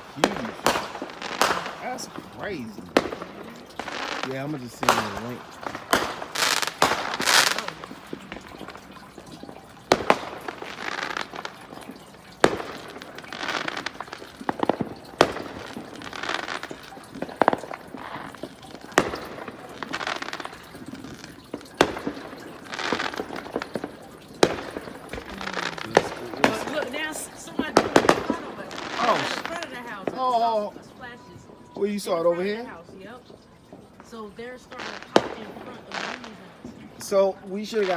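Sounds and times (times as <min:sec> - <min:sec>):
distant fireworks bangs: 0:00.0 - 0:37.9
fireworks crackling: 0:00.0 - 0:37.9.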